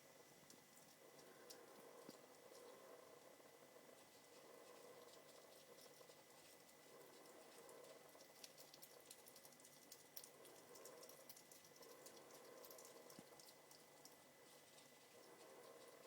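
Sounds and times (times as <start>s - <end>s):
hedgehog chewing and crunching: 0.0s - 16.0s.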